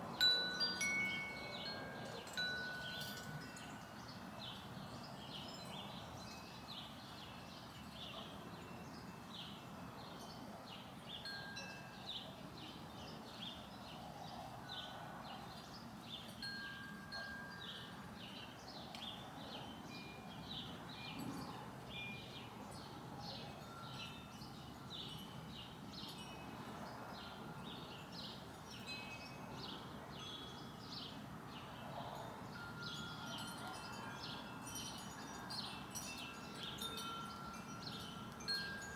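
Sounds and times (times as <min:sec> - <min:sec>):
small birds chirping: 0:32.6 - 0:38.9.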